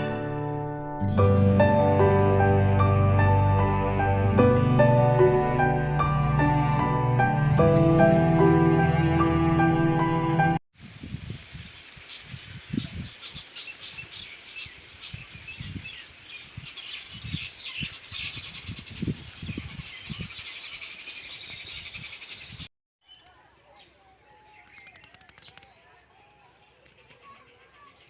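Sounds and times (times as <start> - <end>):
small birds chirping: 12.1 - 28.0.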